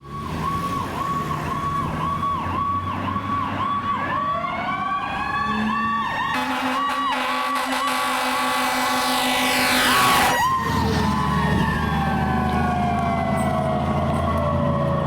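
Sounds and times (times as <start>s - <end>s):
truck engine rumble: 0.0s - 15.0s
electronic siren cycling: 0.1s - 15.0s
siren winding up: 5.3s - 14.9s
deep blaring air horn: 6.3s - 10.4s.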